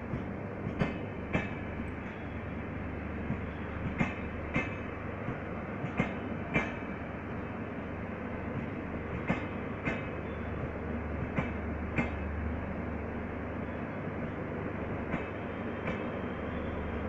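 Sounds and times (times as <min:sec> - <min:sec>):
train rumble: 0:00.0 - 0:17.0
wheels clacking over rail joints: 0:03.2 - 0:07.0, 0:08.5 - 0:12.4.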